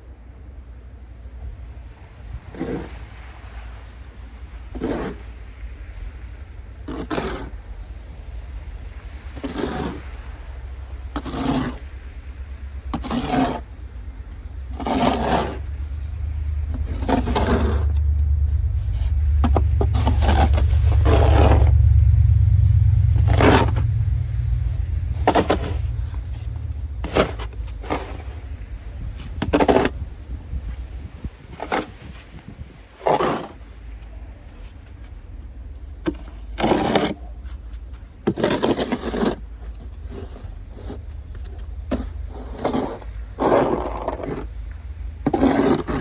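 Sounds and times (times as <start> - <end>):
low rumble: 0.0 - 33.0
snow shovel scraping pavement: 2.2 - 46.0.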